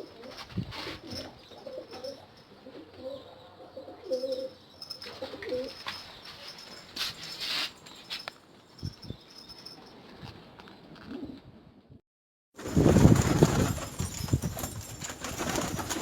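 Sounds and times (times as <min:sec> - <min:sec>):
pigeons cooing: 0:00.0 - 0:05.8
rustling: 0:05.0 - 0:08.8.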